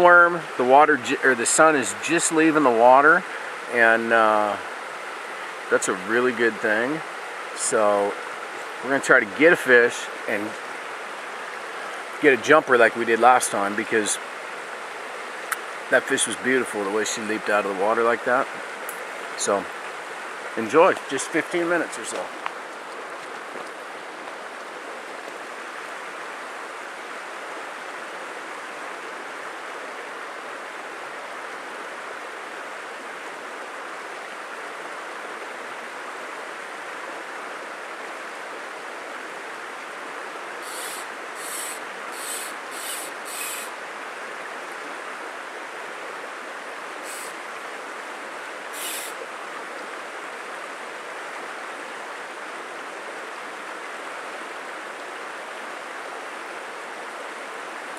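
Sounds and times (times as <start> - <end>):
stream water flowing: 0.0 - 57.9
short hissing swishes: 40.6 - 43.7, 48.8 - 49.2.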